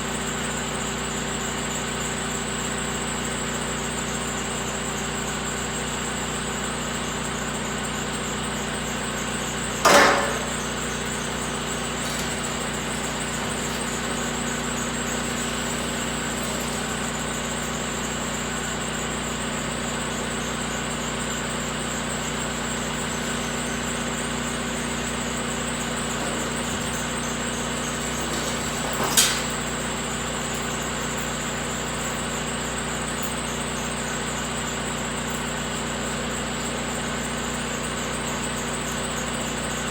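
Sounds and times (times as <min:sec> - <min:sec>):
machine hum: 0:09.6 - 0:19.0, 0:21.8 - 0:33.8
metallic clanks: 0:09.8 - 0:17.2, 0:25.5 - 0:31.4.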